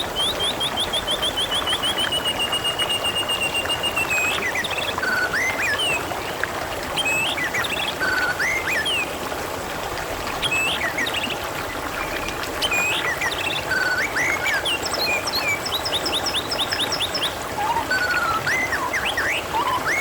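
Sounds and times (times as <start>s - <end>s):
birdsong: 0.0s - 6.4s, 10.3s - 20.0s
babbling water: 0.0s - 20.0s.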